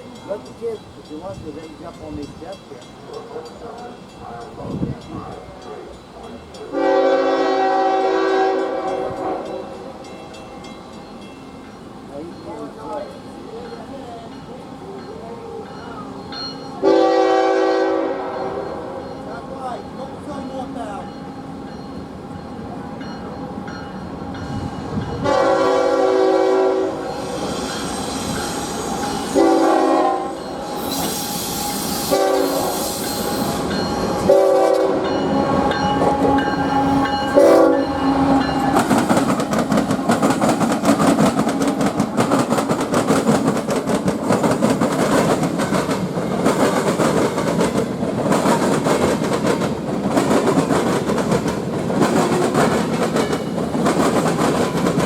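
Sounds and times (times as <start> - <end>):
train horn blasts: 6.7 - 10.4, 16.8 - 19.2, 24.6 - 39.0
train wheels rumbling and clicking: 26.8 - 55.0.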